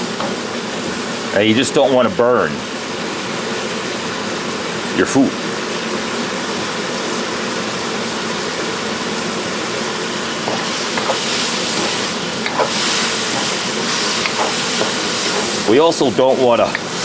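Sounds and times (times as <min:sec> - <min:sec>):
ham sizzling in a wok: 0:00.0 - 0:17.0
spatula tapping a pan: 0:00.1 - 0:00.5, 0:10.4 - 0:15.7, 0:16.7 - 0:17.0.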